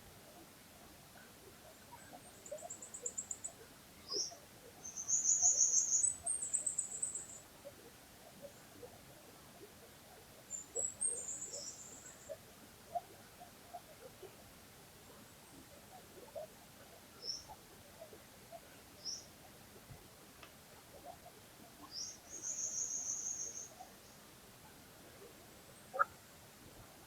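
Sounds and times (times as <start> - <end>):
faint trickling stream: 0.0 - 27.0.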